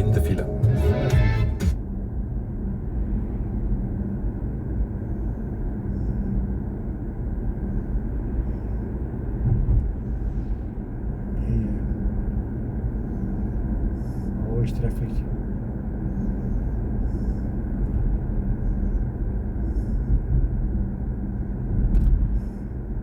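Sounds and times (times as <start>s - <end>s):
road and tyre rumble in car: 0.0s - 23.0s.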